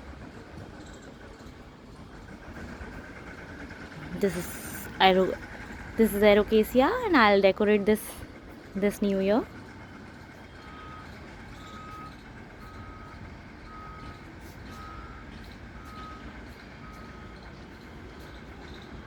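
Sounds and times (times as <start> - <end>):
low background noise: 0.0 - 12.1
vehicle reversing alarm beeping: 2.2 - 19.0.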